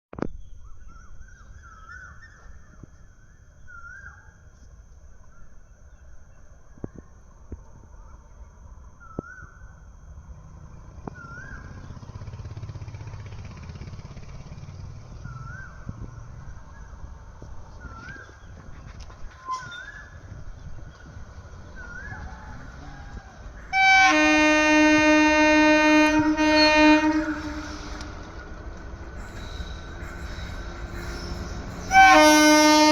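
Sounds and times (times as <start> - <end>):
locomotive horn blast: 23.7 - 28.7, 31.4 - 32.9.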